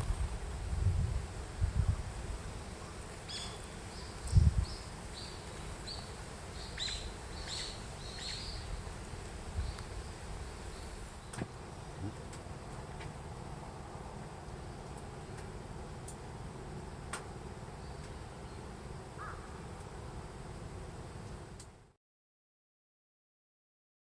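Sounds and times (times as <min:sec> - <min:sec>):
wind rumbling on microphone: 0:00.0 - 0:16.9
small bird chirping: 0:03.3 - 0:08.9.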